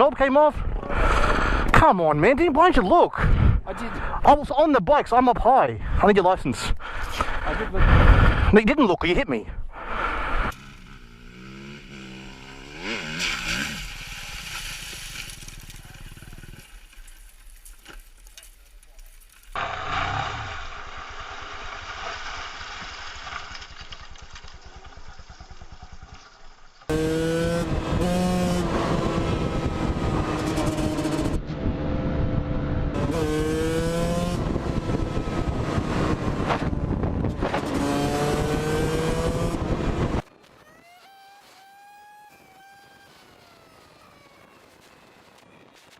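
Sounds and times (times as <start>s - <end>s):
motorcycle engine revving hard: 10.2s - 14.6s, 26.9s - 40.3s.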